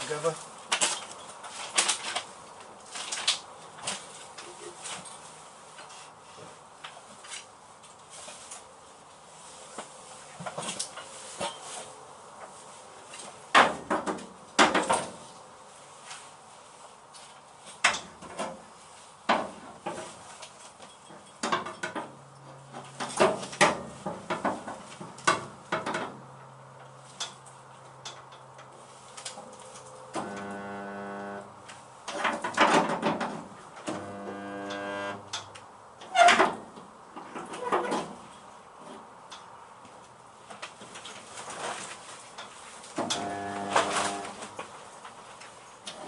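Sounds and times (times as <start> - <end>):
spot welder buzzing: 30.2 - 31.6, 33.9 - 35.5, 43.0 - 44.6.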